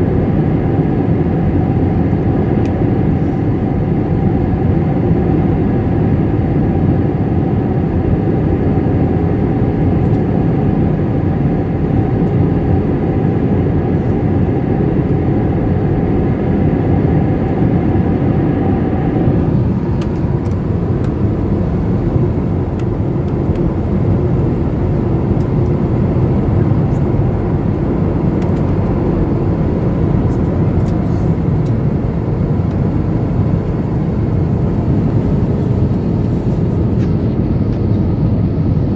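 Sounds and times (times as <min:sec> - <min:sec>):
jet engine hum: 0:00.0 - 0:38.9
cabin air rush: 0:13.2 - 0:38.1.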